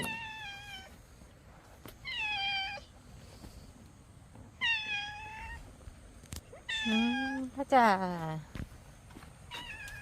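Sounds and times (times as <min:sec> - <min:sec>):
cat meowing: 0:06.6 - 0:07.5.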